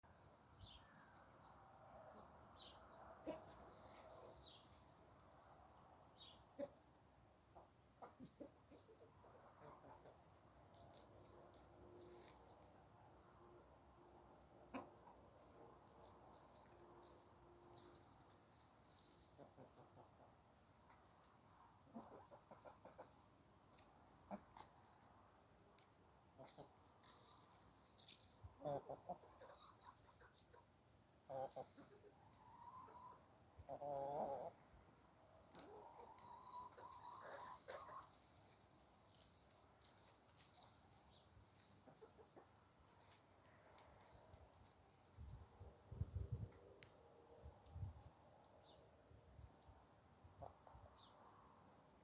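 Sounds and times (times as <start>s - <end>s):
fowl clucking: 7.6s - 10.3s, 14.6s - 15.2s, 21.8s - 23.2s, 28.6s - 30.7s, 31.3s - 34.6s, 35.5s - 38.2s.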